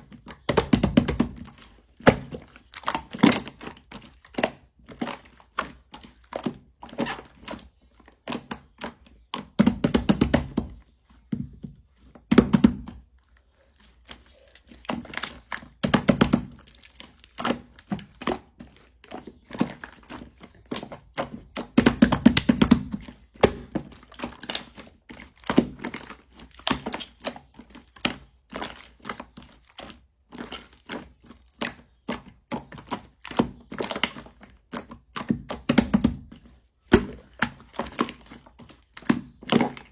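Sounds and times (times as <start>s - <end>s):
slime squishing: 0.0s - 39.9s.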